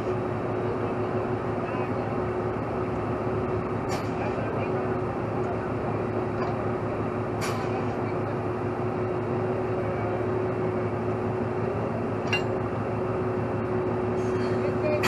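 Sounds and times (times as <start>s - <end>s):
heavy truck engine running: 0.0s - 15.0s.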